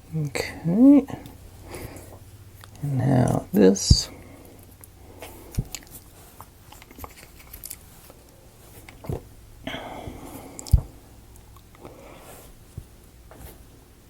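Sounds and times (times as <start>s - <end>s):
crunchy rustling: 5.2s - 9.2s.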